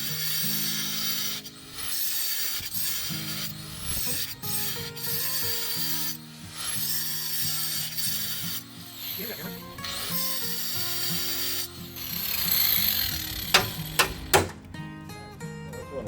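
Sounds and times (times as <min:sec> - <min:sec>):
ratchet wrench clicking: 0:00.0 - 0:14.7
background music: 0:03.5 - 0:16.0.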